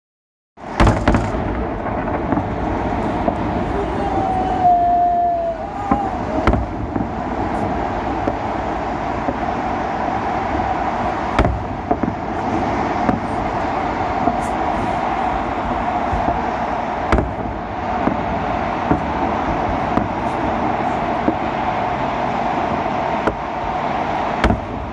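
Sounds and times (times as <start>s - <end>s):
background rumble: 0.6s - 24.9s
fireworks bangs: 0.6s - 24.9s
fireworks pops: 0.7s - 3.5s, 5.8s - 8.5s, 9.2s - 9.5s, 11.3s - 13.4s, 14.2s - 15.1s, 16.1s - 16.5s, 17.1s - 20.4s.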